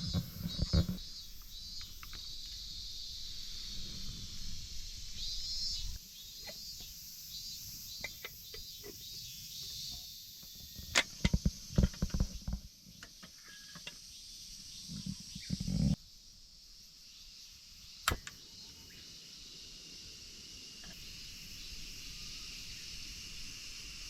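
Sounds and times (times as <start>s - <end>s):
sharp knocks and clicks: 0.0s - 1.0s, 10.7s - 13.9s
insects chirping: 0.0s - 24.0s.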